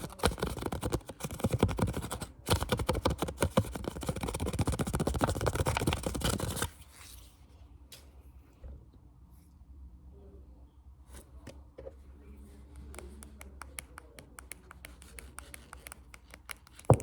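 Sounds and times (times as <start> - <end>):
fingertip tapping and scratching: 0.0 - 6.7, 12.8 - 17.0.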